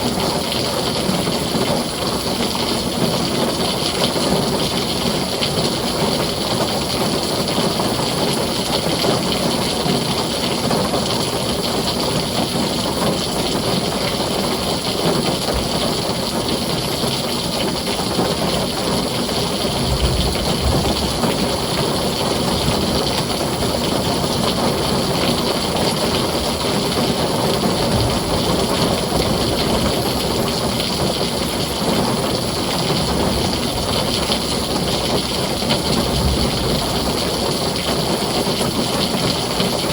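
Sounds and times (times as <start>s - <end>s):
heavy rain on a tin roof: 0.0s - 39.9s
low rumbles: 19.7s - 37.7s.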